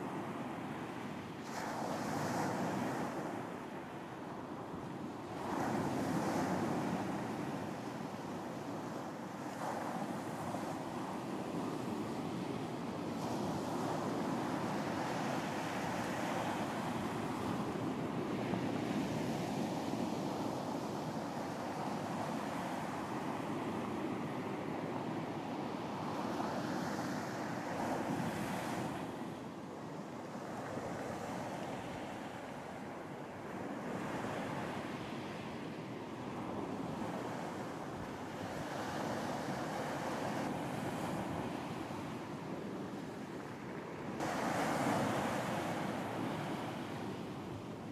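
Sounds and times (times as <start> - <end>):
ocean waves washing onto beach: 0.0 - 47.9
wind: 0.0 - 47.9
surf washing onto beach: 44.2 - 47.6.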